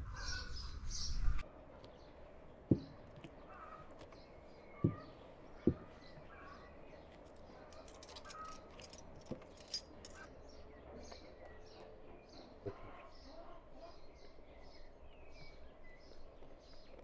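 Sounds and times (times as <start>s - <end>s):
birds chirping: 0.0s - 17.0s
soft knocks: 2.7s - 3.2s, 4.8s - 6.0s.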